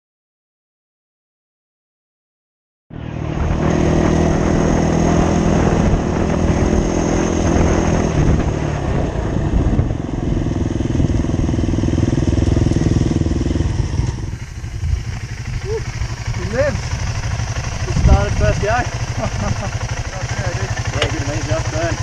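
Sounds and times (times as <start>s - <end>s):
off-road motorcycle engine: 2.9s - 22.0s.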